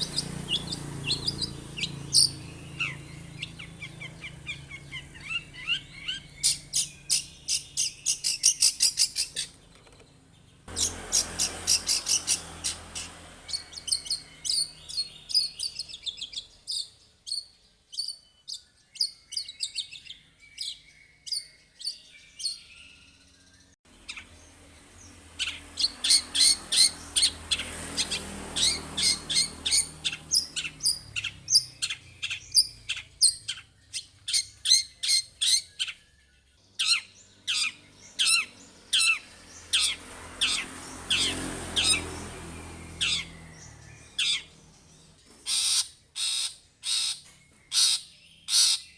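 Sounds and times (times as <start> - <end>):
shrike singing sharp chattering notes: 0.0 - 9.4.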